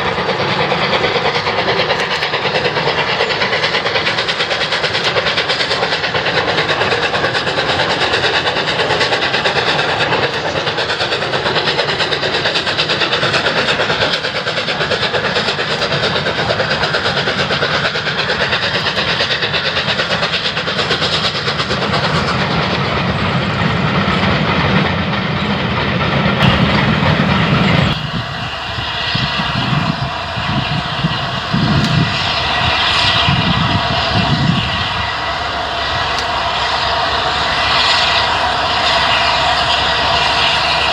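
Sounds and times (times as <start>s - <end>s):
rhythmic low pulsing: 0.0s - 14.5s, 26.2s - 40.9s
train wheels clattering over rails: 0.0s - 40.9s.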